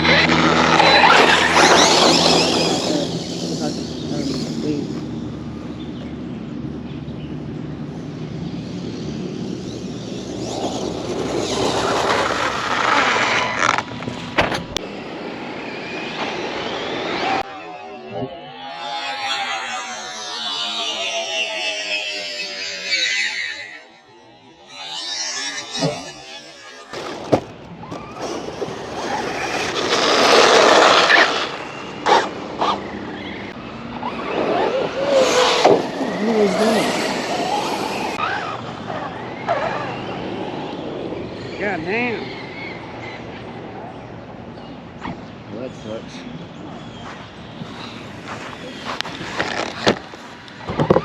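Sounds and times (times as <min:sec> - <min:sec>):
tyre noise: 0:00.0 - 0:05.1, 0:09.6 - 0:14.8, 0:24.6 - 0:32.9, 0:34.0 - 0:38.6, 0:46.9 - 0:51.0
electric motor whine: 0:34.2 - 0:38.3.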